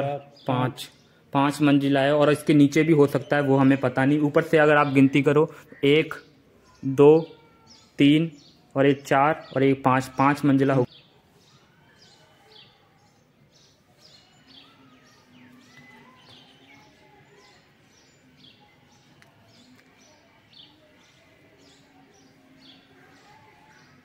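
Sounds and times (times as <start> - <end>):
faint high bird chirps: 5.7 - 8.8, 9.4 - 24.0.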